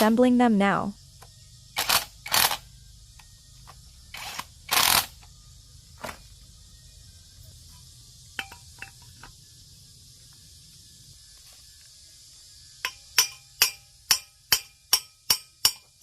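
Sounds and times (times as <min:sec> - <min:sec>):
light metallic clinks: 0:07.7 - 0:09.4.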